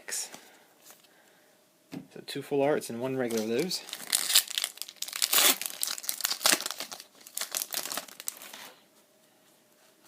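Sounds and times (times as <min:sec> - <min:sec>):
foil wrapper crinkling and tearing: 0:03.3 - 0:08.7.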